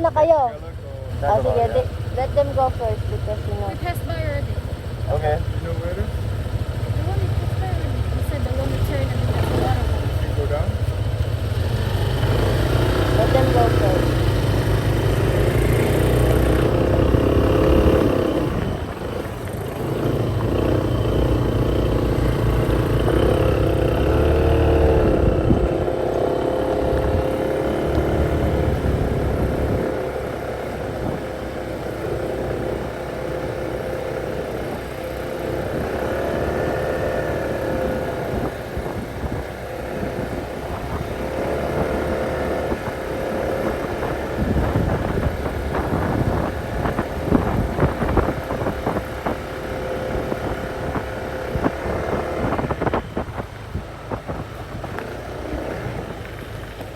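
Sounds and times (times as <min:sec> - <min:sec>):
small motorcycle engine revving: 0:00.0 - 0:56.9.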